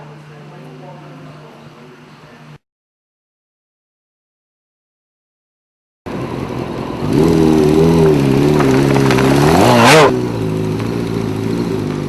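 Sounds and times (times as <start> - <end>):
motorcycle engine idling: 6.1 - 12.0
motorcycle engine revving: 6.1 - 12.0.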